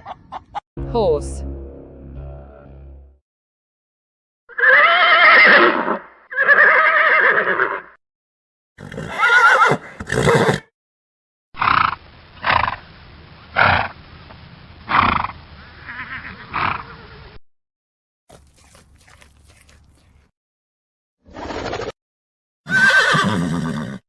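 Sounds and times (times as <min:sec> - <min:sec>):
horse whinnying: 0:04.5 - 0:07.9, 0:08.8 - 0:10.7, 0:22.7 - 0:24.0.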